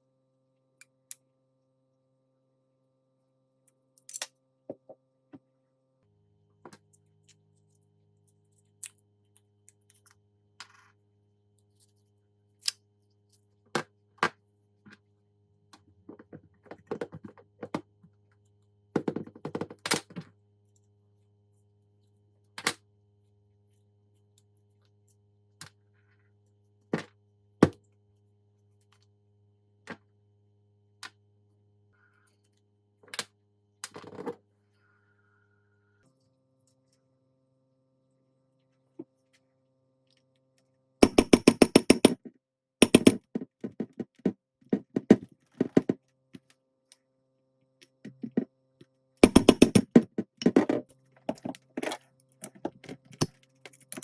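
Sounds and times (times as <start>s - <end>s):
metal tool parts clicking: 41.0s - 42.2s, 42.8s - 43.2s, 49.2s - 50.0s.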